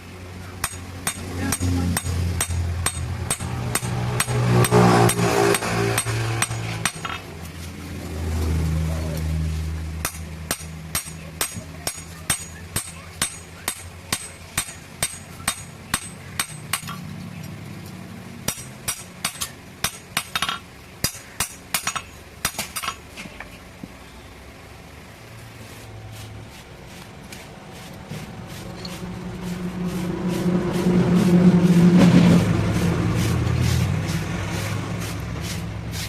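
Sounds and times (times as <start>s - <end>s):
hammer ringing on metal: 0.6s - 7.2s, 10.0s - 16.9s.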